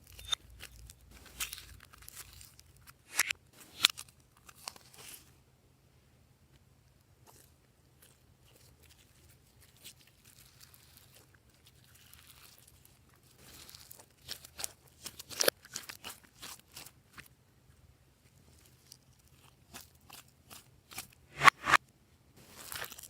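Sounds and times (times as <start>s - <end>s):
slime sticky rustle: 7.3s - 16.9s.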